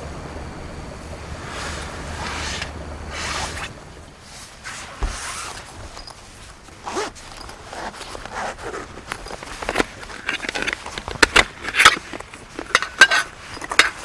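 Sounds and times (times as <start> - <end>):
zipper rasping: 4.6 - 14.0.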